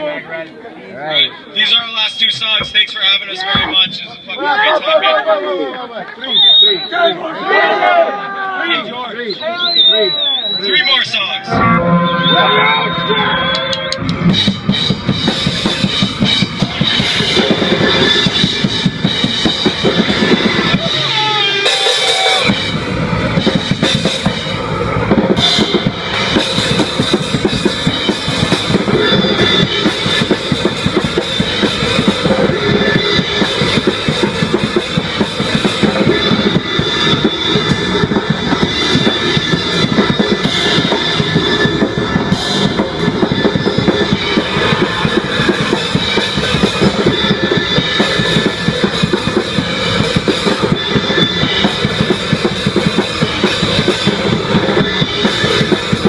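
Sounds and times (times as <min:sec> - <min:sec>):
live rock band playing: 0:09.7 - 0:56.0
bass drum and cymbals: 0:11.4 - 0:56.0.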